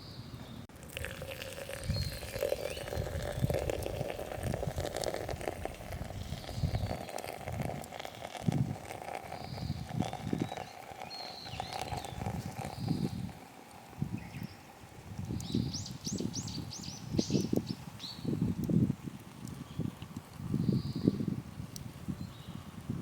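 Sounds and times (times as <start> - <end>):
birds chirping faintly: 0.0 - 4.3, 4.9 - 8.4, 9.1 - 13.4.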